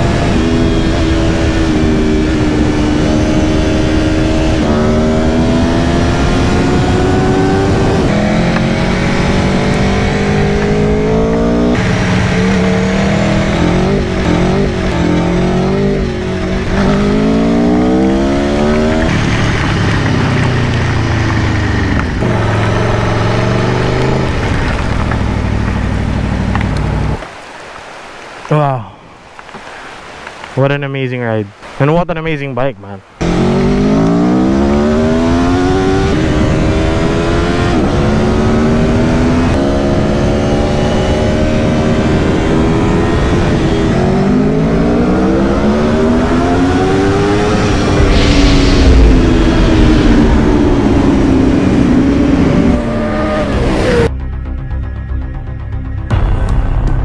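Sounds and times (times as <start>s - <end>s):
motorcycle engine accelerating: 0.0s - 27.2s, 33.2s - 54.6s.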